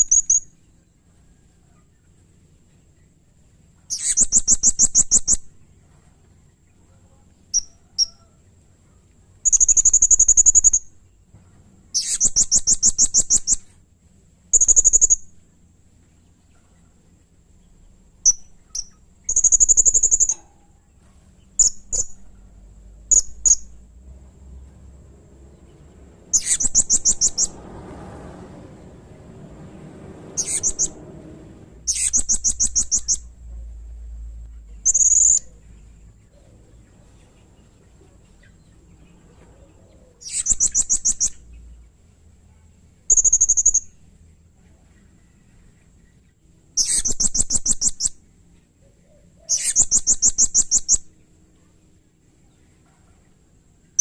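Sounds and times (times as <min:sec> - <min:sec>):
parrot shrill pulsed calls: 0:26.3 - 0:27.6, 0:30.4 - 0:31.0, 0:31.9 - 0:33.3.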